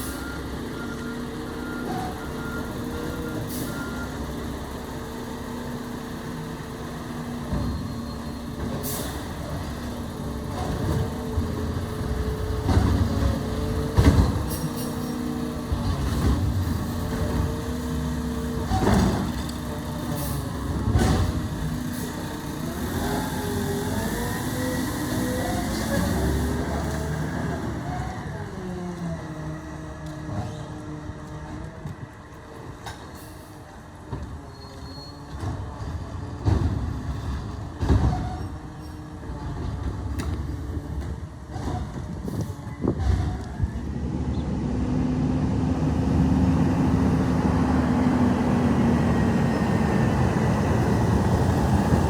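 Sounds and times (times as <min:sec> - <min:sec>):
garbage truck engine running: 0:00.0 - 0:34.5.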